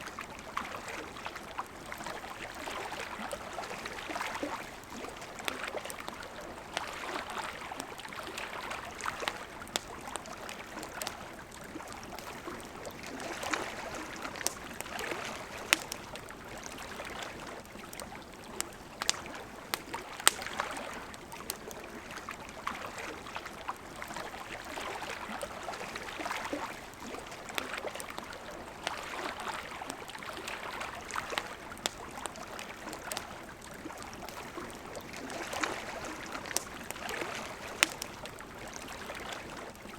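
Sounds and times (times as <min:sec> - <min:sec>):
campfire crackling and popping: 0:00.0 - 0:39.9
flowing river: 0:00.0 - 0:39.9.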